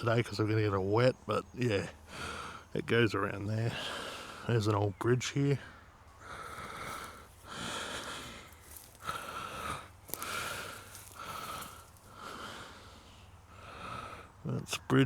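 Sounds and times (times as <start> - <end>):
man breathing heavily: 2.0 - 2.7, 3.7 - 4.6, 5.6 - 14.4.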